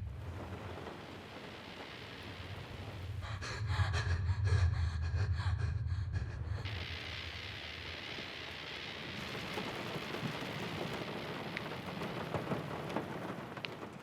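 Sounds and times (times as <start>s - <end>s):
noisy hiss: 0.0s - 3.7s, 6.6s - 14.0s
low steady hum: 0.0s - 12.6s
person gasping breaths: 3.2s - 6.7s.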